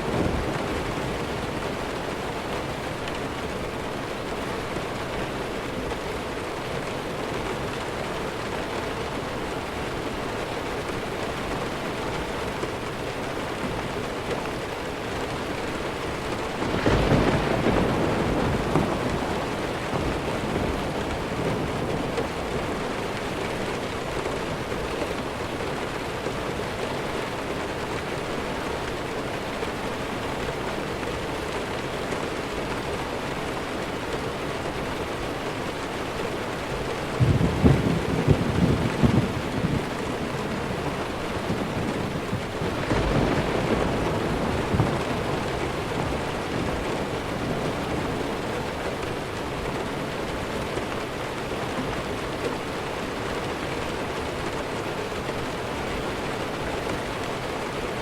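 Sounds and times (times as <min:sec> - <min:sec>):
thunder rumbling: 0:00.0 - 0:06.5, 0:14.9 - 0:26.0, 0:36.8 - 0:53.3
heavy rain: 0:00.0 - 0:58.0.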